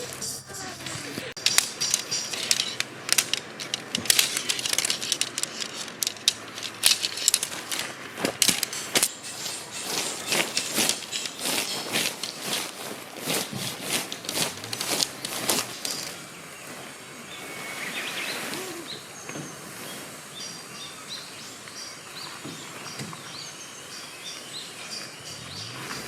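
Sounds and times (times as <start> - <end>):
songbirds chirping: 0.0 - 26.0
crunching knocks: 1.2 - 16.3.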